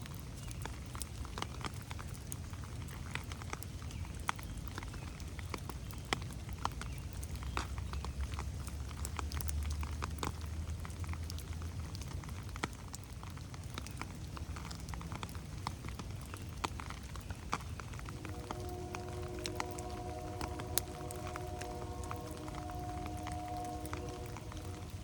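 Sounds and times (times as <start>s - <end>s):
raindrops pattering on leaves: 0.0s - 25.0s
rain hiss: 6.3s - 25.0s
distant train horn: 18.0s - 25.0s
low rumble: 18.1s - 25.0s.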